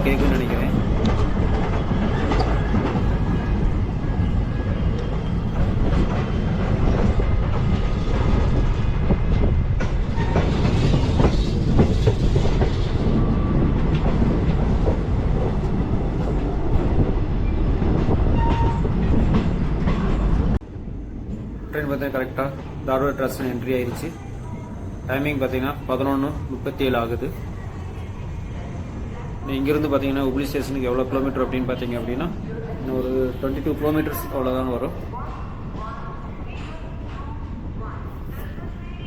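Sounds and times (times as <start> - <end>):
wheels clattering over rail joints: 0.0 - 13.1
train rumbling on track: 0.0 - 39.0.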